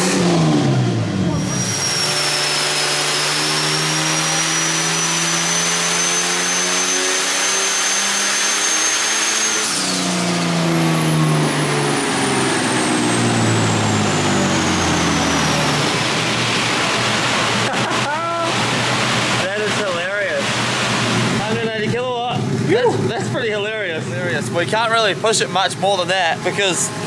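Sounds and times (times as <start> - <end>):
turbo whine: 0.0 - 22.7, 23.4 - 27.0
car engine revving: 0.0 - 27.0
loud rushing noise: 12.5 - 23.1.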